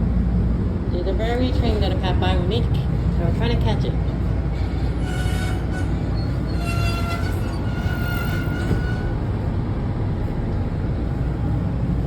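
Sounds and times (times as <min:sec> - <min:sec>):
high train whine: 0:00.0 - 0:12.0
train rumbling on track: 0:00.0 - 0:12.0.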